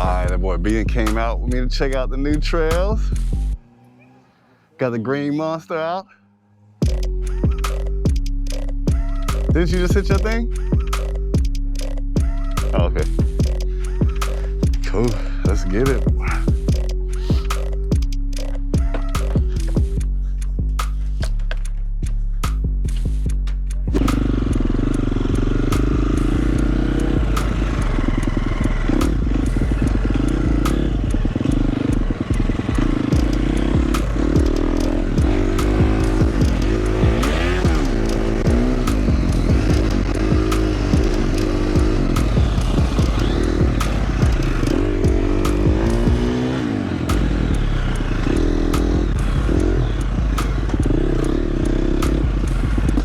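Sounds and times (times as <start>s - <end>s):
dirt bike engine revving: 6.8s - 20.1s, 23.9s - 53.0s.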